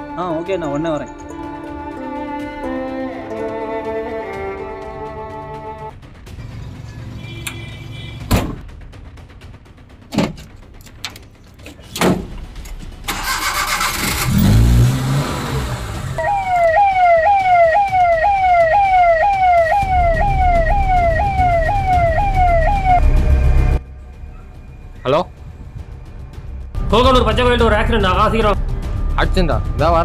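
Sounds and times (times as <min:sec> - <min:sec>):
van door slamming: 0:08.3 - 0:08.7, 0:10.1 - 0:10.5, 0:11.8 - 0:12.4
engine cranking and running: 0:12.4 - 0:16.2
electronic siren wailing: 0:16.2 - 0:23.8.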